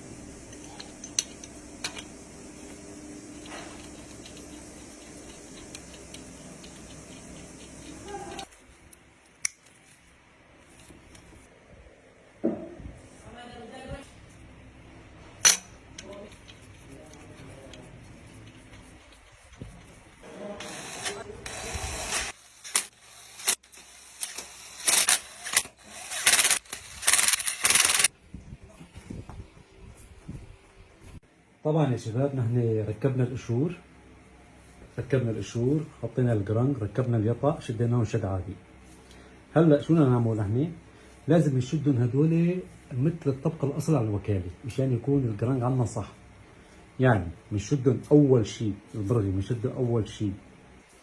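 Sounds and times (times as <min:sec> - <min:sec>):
ratchet wrench clicking: 0:20.6 - 0:28.1.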